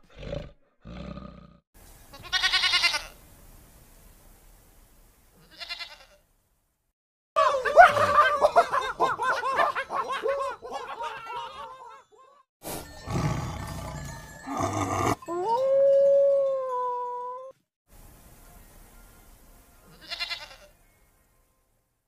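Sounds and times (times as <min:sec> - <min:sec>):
wolf howl: 0:14.8 - 0:17.5.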